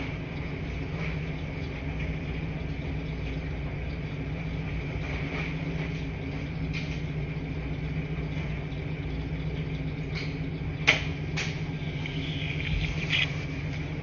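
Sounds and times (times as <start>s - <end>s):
washing machines humming: 0.0s - 14.0s.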